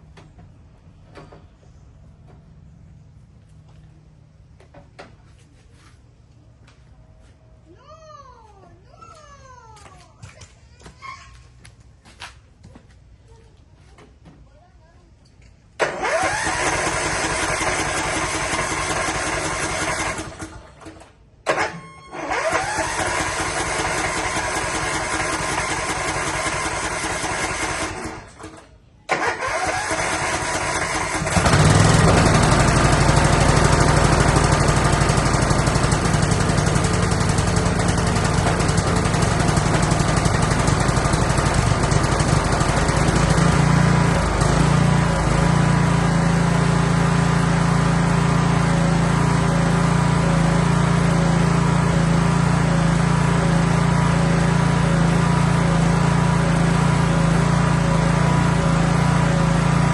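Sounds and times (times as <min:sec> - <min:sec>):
lawn mower engine running: 0:15.8 - 0:59.9.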